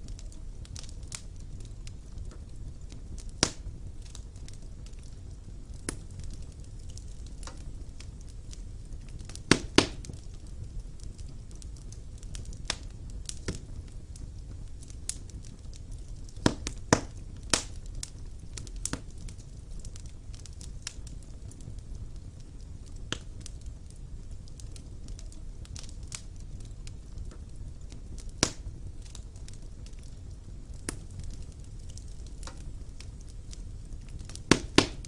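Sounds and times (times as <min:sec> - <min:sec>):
fire crackling and popping: 0:00.0 - 0:35.0.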